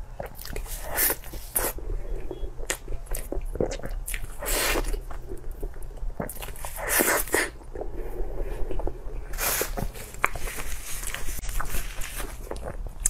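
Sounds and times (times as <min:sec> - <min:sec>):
wet chewing and lip smacking: 0:00.0 - 0:08.0, 0:08.6 - 0:13.0
steady low hum: 0:00.0 - 0:13.0
plastic gloves crinkling: 0:09.2 - 0:13.0.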